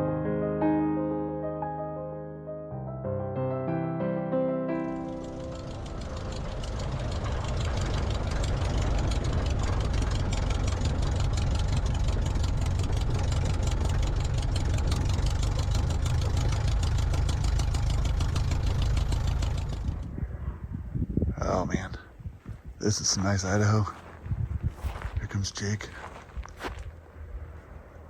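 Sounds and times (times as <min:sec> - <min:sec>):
light aircraft propeller engine: 0:04.8 - 0:20.8.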